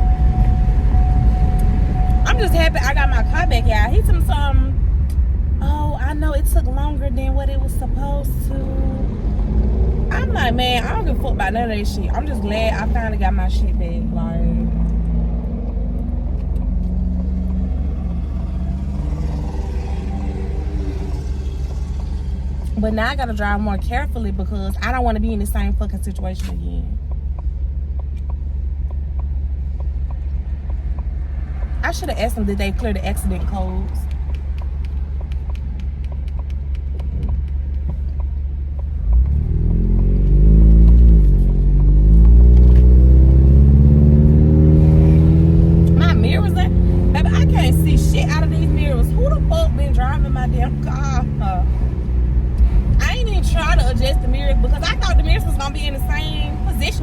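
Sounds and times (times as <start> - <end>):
car engine and road rumble: 0.0 - 57.0
light regular ticking: 26.4 - 44.3.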